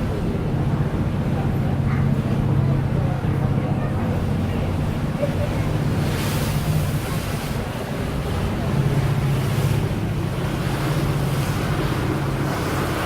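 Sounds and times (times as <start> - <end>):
boat engine humming: 0.0 - 13.0
water rushing past hull: 0.0 - 13.0
wind buffeting microphone: 0.0 - 13.0
water splash: 4.2 - 13.0.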